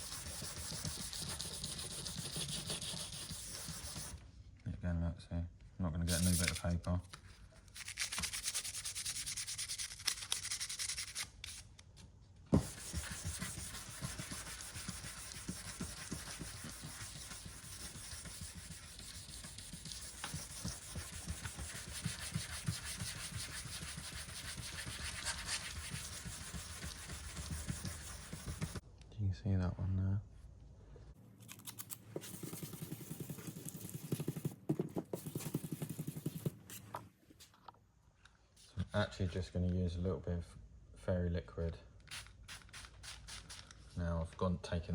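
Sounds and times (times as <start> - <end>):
sandpaper rubbing on metal panel: 0.0 - 4.2, 6.1 - 6.6, 12.6 - 28.8.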